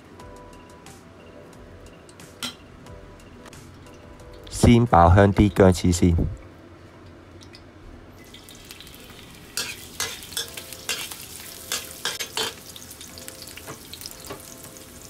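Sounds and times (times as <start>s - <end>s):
food sizzling in hot oil: 8.2s - 15.0s.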